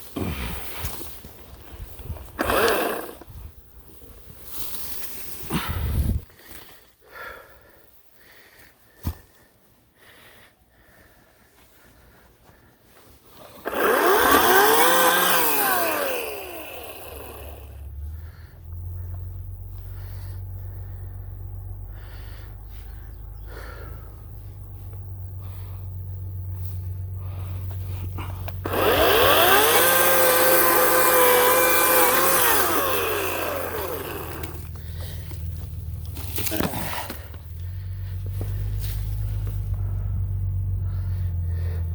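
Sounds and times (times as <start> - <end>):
electric chainsaw whining: 2.0 - 3.5, 13.6 - 41.9
low steady hum: 13.7 - 41.9.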